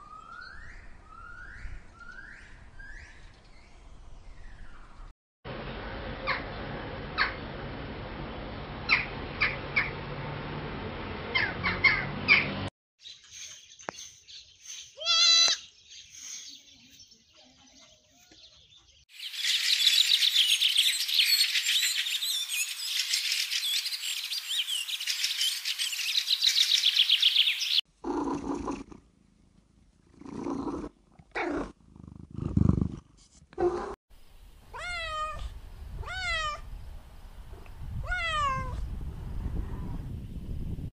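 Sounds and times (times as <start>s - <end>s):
birds chirping chorus: 13.0s - 27.8s
cat meowing: 15.0s - 15.6s, 34.7s - 36.7s, 38.0s - 38.8s.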